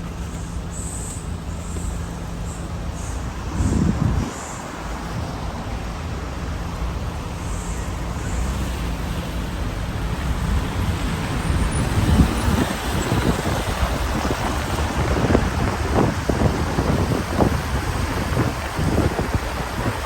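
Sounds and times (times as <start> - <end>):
car road noise: 0.0 - 20.0.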